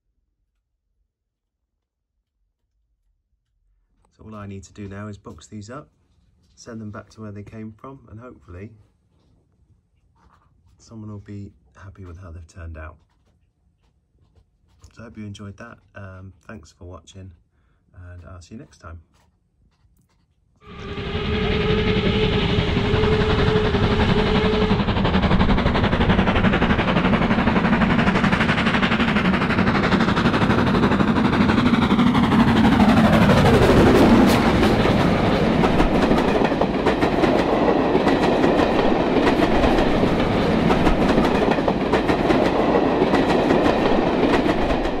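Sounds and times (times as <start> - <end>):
train rumbling past: 20.6 - 45.0
wheels clacking over rail joints: 24.3 - 45.0.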